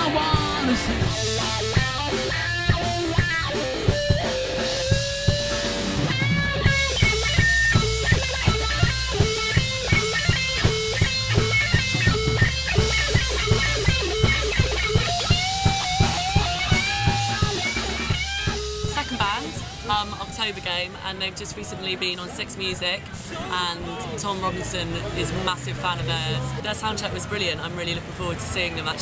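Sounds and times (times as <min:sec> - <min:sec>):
instrumental rock band music: 0:00.0 - 0:21.0.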